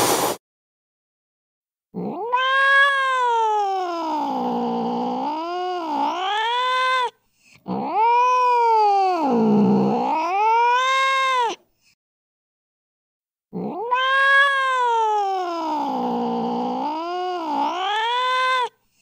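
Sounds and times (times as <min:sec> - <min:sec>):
cat yowling: 0:02.0 - 0:11.6, 0:13.5 - 0:18.8.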